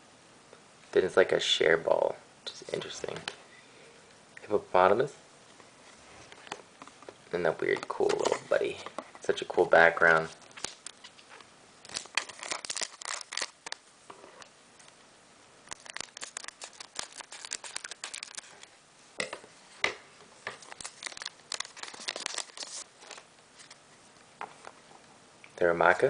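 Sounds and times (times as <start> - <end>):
plastic wrapper crinkling: 10.0 - 15.0, 15.6 - 19.3, 20.5 - 23.8.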